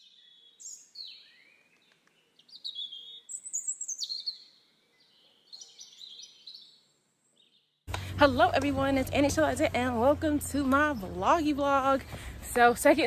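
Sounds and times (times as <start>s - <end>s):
birds chirping and whistling: 0.0s - 7.8s.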